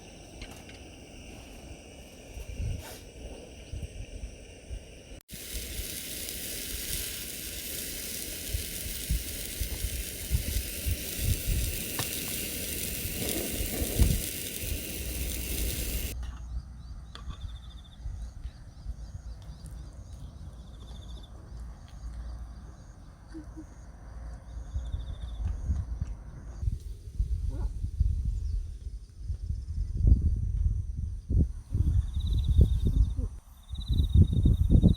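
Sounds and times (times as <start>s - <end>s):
campfire crackling: 0.0s - 16.2s
wind rumble on microphone: 0.0s - 16.2s, 24.4s - 34.9s.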